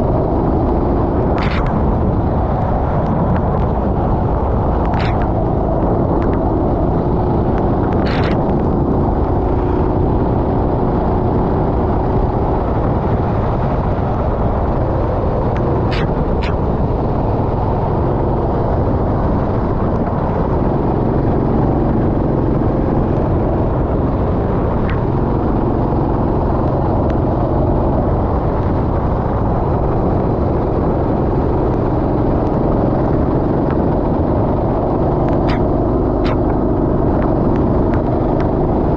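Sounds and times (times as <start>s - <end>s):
wet track noise: 0.0s - 11.0s, 12.6s - 27.6s, 31.0s - 38.9s
rush of wind: 0.0s - 38.9s
sharp clicks: 1.3s - 2.0s, 4.8s - 6.5s, 7.5s - 8.7s, 15.5s - 16.7s, 35.2s - 36.6s.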